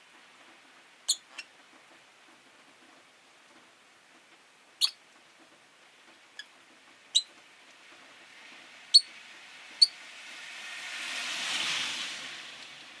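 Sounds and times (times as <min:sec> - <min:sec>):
vehicle passing: 0:07.8 - 0:13.0.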